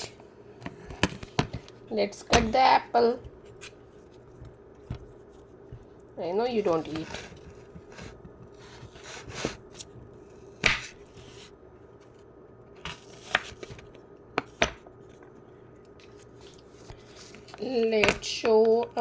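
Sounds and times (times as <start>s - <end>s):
knife cutting an apple: 6.4s - 11.6s, 12.8s - 13.8s.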